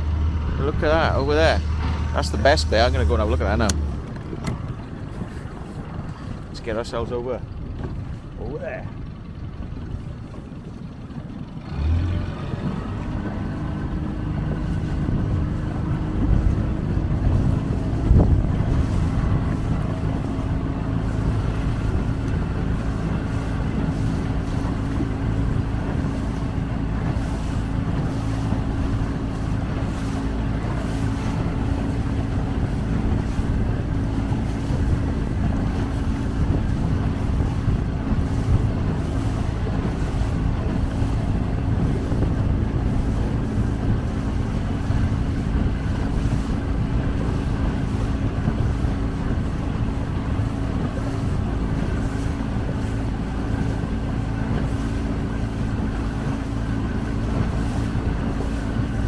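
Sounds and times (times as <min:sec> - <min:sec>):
water rushing: 0:00.0 - 0:09.0, 0:09.9 - 0:59.0
motorboat engine droning: 0:00.0 - 0:59.0
wind buffeting microphone: 0:00.0 - 0:59.0.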